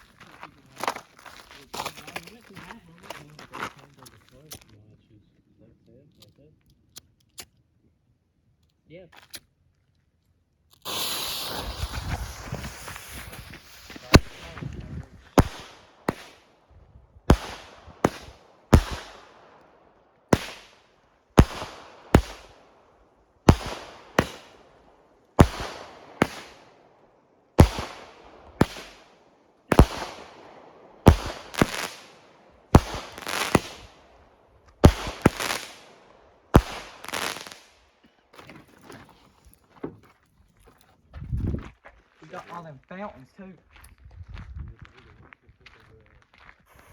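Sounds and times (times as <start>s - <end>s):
fireworks bangs: 10.9s - 37.8s.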